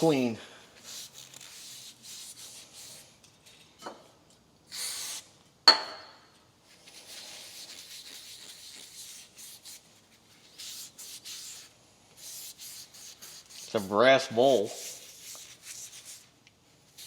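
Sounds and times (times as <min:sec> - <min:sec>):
spray can hiss: 0:04.7 - 0:05.3.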